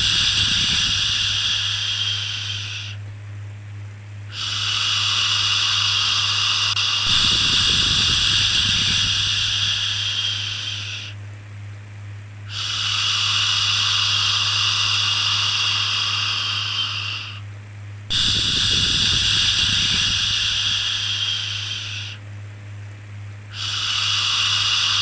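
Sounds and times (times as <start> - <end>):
steady low hum: 0.0 - 25.0
person shushing: 4.3 - 11.1.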